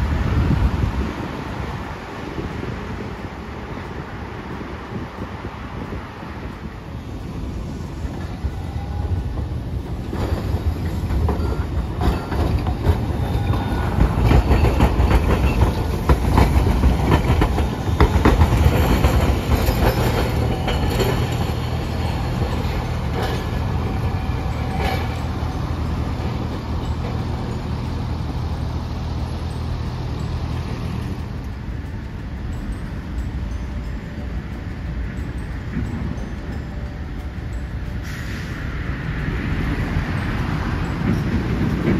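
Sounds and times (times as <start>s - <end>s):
streetcar wheels clacking over rail joints: 0.0s - 41.9s.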